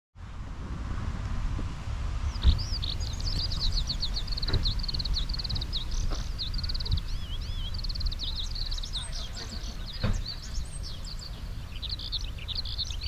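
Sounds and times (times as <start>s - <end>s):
low rumble: 0.2s - 13.0s
songbird trilling and chirping: 2.3s - 13.0s
thump: 2.4s - 2.6s, 10.0s - 10.4s.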